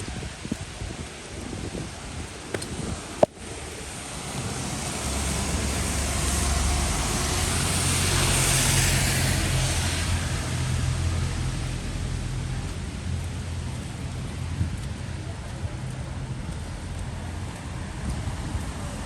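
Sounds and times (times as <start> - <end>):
rain hiss: 0.0 - 15.1
vehicle passing on wet street: 0.1 - 19.0.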